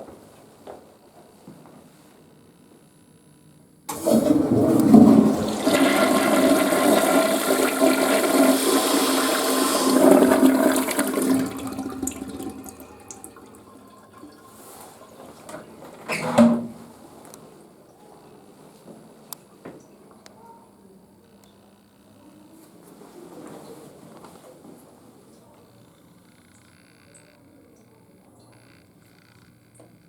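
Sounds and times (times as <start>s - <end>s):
toilet flushing: 3.9s - 16.8s.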